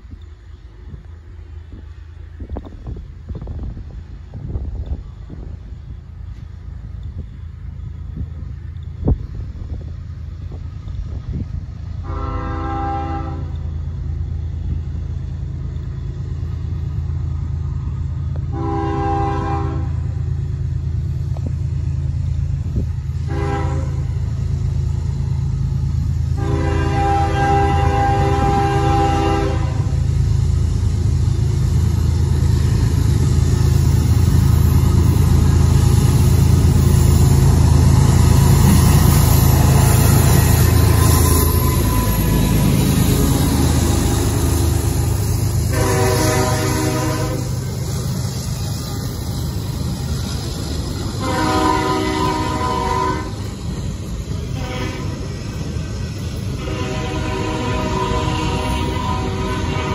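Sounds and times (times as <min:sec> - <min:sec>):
wheels on rails: 0:00.0 - 0:18.6, 0:20.0 - 0:59.9
locomotive engine rumble: 0:00.0 - 0:59.9
train horn chord: 0:12.0 - 0:13.6, 0:18.5 - 0:20.0, 0:23.2 - 0:24.2, 0:26.4 - 0:30.0, 0:45.7 - 0:47.6, 0:51.2 - 0:53.4, 0:54.5 - 0:55.3, 0:56.6 - 0:59.9.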